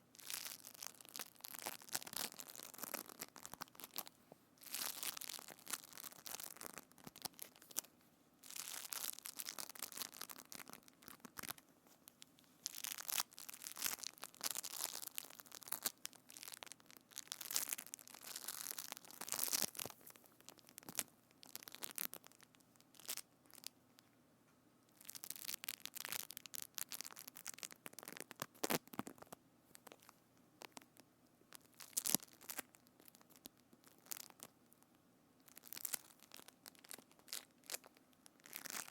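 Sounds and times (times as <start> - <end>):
crackling crinkling handling: 0.0 - 24.1, 24.9 - 38.9.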